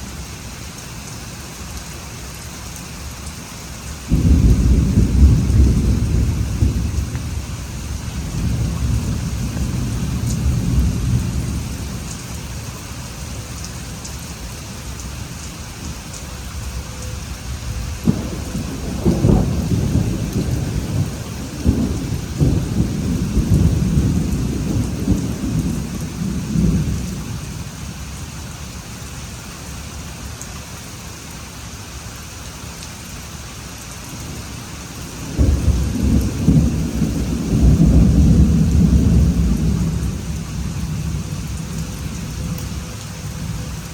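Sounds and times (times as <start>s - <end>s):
steady rain: 0.0s - 43.9s
thunder rumbling: 4.1s - 28.2s, 35.1s - 43.9s.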